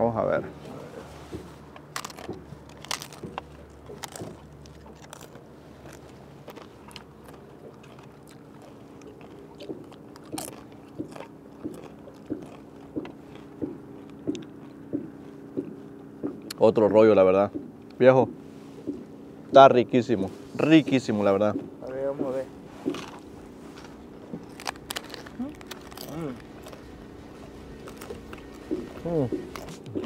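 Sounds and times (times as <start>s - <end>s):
person chewing: 1.2s - 16.6s, 22.5s - 30.0s
tostada crunching when bitten: 1.3s - 16.6s, 22.6s - 30.0s.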